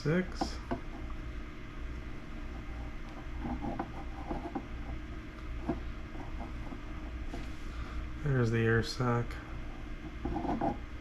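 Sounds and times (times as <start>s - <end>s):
steady low hum: 0.0s - 11.0s
small clicks and rubbing of egg: 1.9s - 7.5s, 9.6s - 10.9s.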